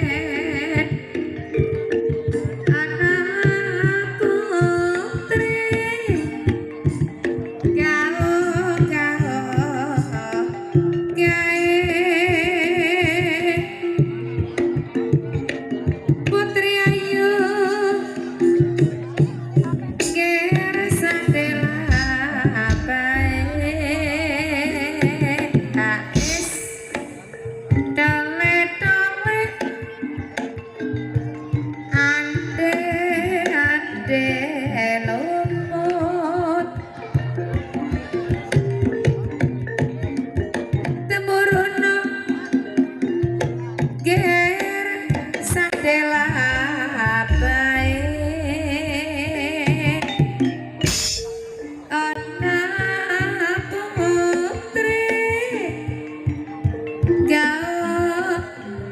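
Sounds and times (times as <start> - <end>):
gamelan notes: 0.0 - 58.9
struck percussion: 18.4 - 34.2, 43.0 - 58.0
hand drum strokes: 18.8 - 28.1, 45.1 - 53.2
person singing with vibrato: 20.0 - 27.4, 44.2 - 50.1.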